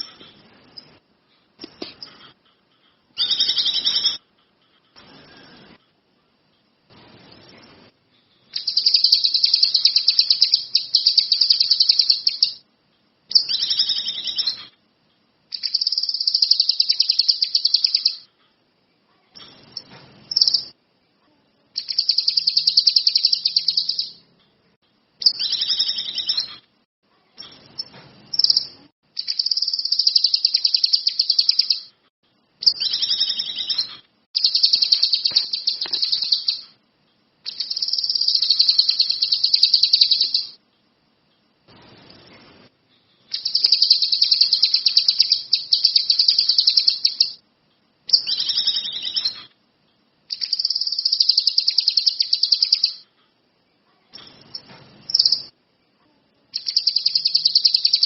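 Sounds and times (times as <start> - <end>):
songbird singing trilled phrases: 3.2 - 4.2, 8.5 - 12.6, 13.3 - 14.7, 15.5 - 18.3, 19.4 - 20.8, 21.8 - 24.3, 25.2 - 26.6, 27.4 - 31.9, 32.6 - 36.8, 37.4 - 40.6, 43.3 - 47.4, 48.1 - 49.6, 50.3 - 53.0, 54.2 - 55.5, 56.6 - 58.0.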